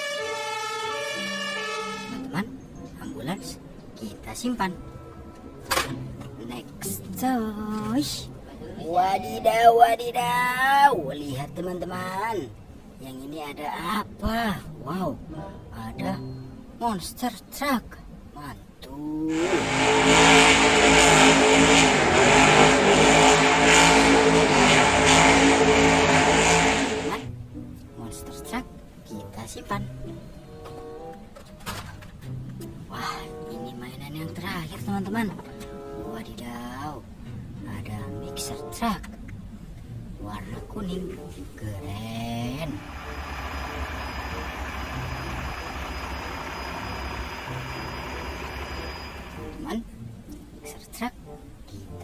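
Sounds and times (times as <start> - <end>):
loud engine revving: 19.3 - 27.3, 42.8 - 49.4
engine running with low hum: 42.8 - 49.6.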